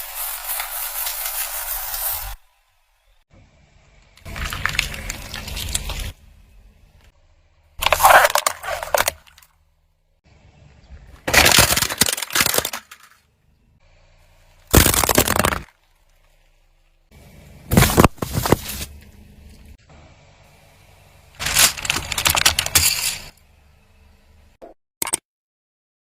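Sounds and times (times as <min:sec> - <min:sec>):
objects crunching under car tyre: 0:04.2 - 0:06.2, 0:07.8 - 0:09.5, 0:11.0 - 0:13.2, 0:14.6 - 0:16.5, 0:17.7 - 0:19.1.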